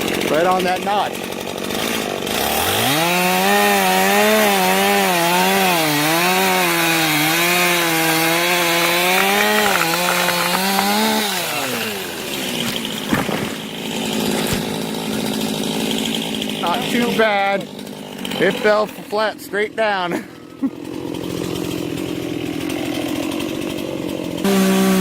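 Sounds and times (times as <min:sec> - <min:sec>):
chainsaw cutting at full throttle: 0:00.0 - 0:25.0
falling tree knocks: 0:08.2 - 0:14.9.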